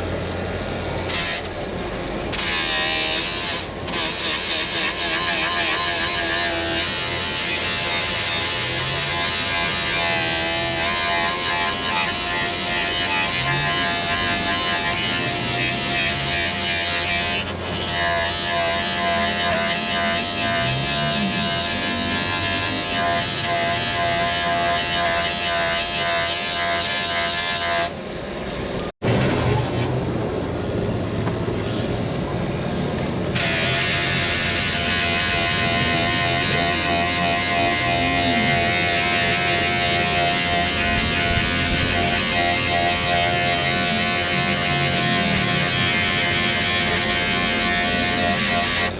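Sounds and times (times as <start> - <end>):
electric power tool whining: 33.0 - 48.9.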